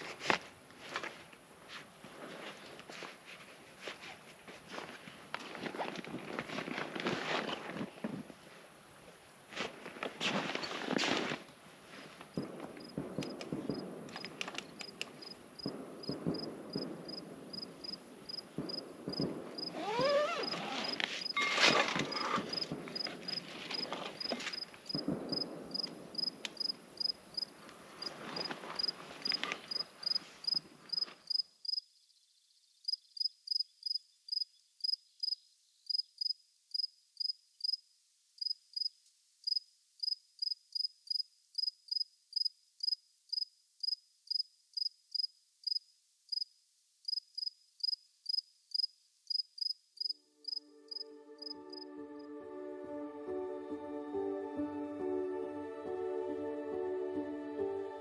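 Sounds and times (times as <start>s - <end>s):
rustling with sharp knocks: 9.6s - 26.0s
cricket chirping: 12.4s - 51.9s.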